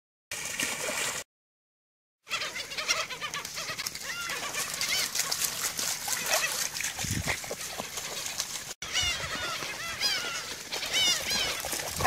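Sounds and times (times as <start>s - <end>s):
many birds chirping: 2.3s - 5.5s, 6.1s - 12.0s.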